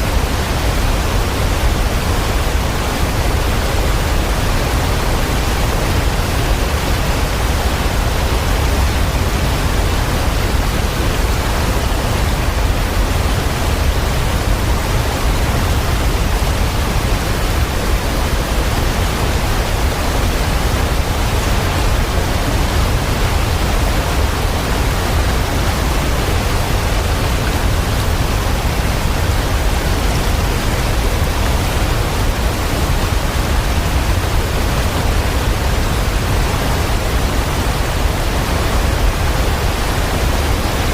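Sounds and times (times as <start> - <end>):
falling water rushing: 0.0 - 40.9.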